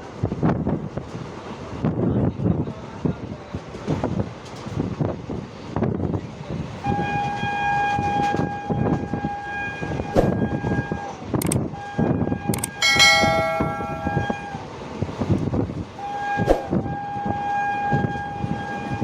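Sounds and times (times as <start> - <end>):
moving train rumble: 0.0 - 19.0
train horn blasts: 6.8 - 15.0, 16.0 - 19.0
rich train horn blast: 6.9 - 14.8, 16.0 - 19.0.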